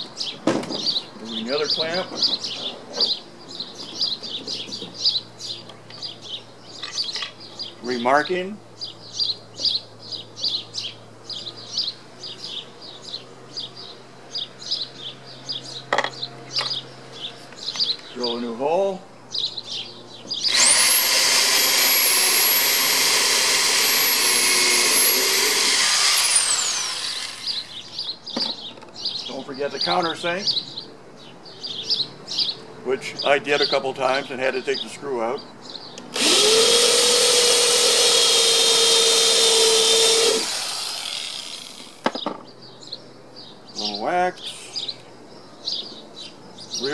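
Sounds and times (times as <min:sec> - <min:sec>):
small bird chirping: 0:08.8 - 0:18.5, 0:19.3 - 0:20.8, 0:25.0 - 0:33.8
electric drill whining: 0:20.5 - 0:27.8, 0:36.1 - 0:42.1.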